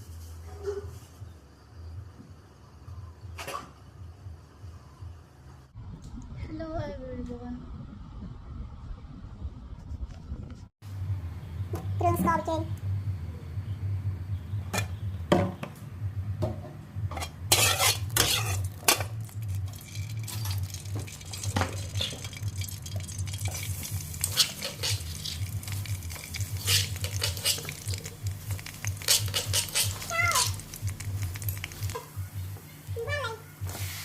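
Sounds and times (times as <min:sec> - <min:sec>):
steady low hum: 0:04.0 - 0:33.0
metal utensil scraping a pan: 0:17.1 - 0:30.6
food sizzling: 0:17.5 - 0:32.2.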